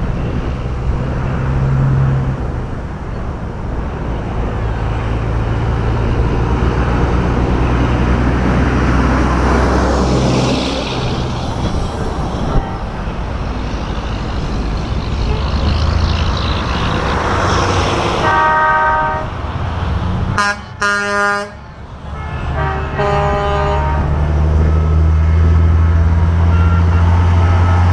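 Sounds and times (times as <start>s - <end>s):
trucks driving past: 0.0s - 27.9s.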